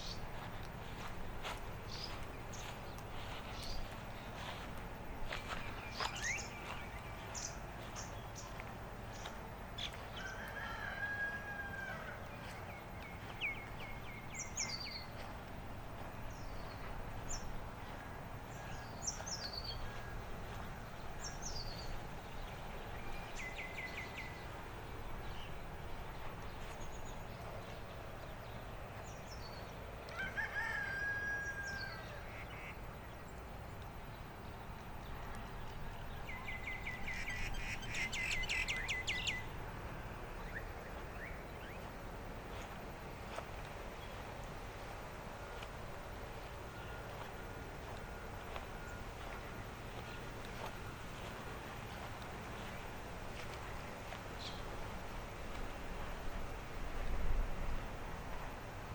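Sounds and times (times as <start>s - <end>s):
birds chirping: 0.0s - 11.3s
low outdoor hum: 0.0s - 58.9s.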